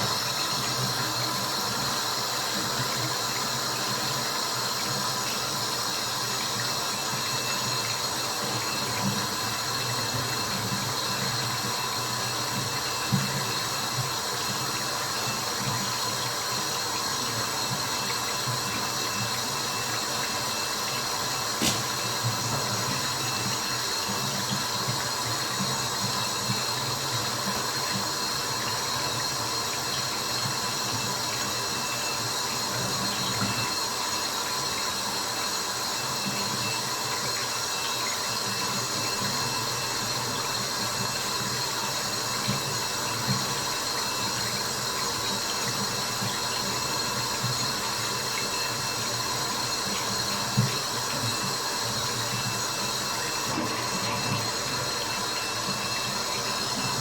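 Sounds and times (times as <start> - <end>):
water running: 0.0 - 57.0.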